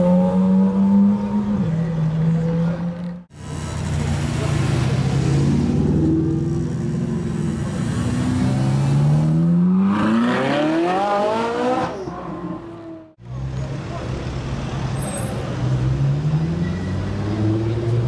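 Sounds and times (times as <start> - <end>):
car engine revving hard: 8.0 - 11.9.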